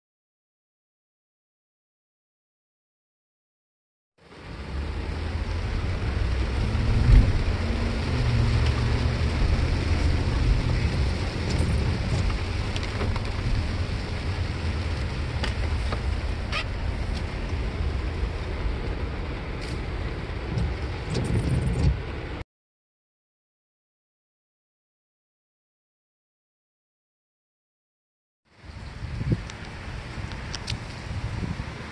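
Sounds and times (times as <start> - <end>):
heavy rain on vehicle roof: 4.2 - 22.4, 28.6 - 31.9
vehicle low rumble: 4.2 - 22.4, 28.5 - 31.9.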